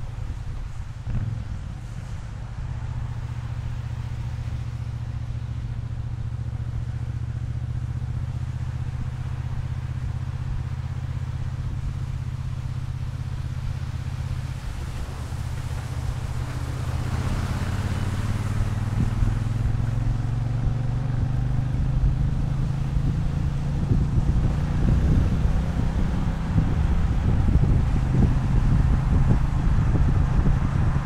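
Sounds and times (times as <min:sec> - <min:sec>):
motorcycle engine running: 0:15.9 - 0:31.0.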